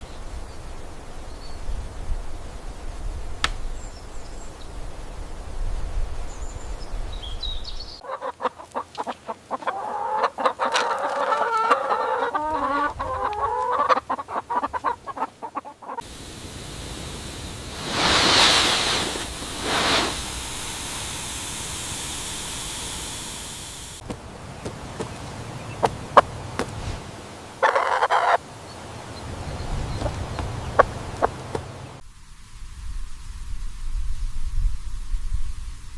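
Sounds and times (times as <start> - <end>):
chickens clucking: 8.0 - 16.0, 24.5 - 26.8, 27.6 - 32.0
steady hiss: 16.0 - 27.6, 28.3 - 35.9.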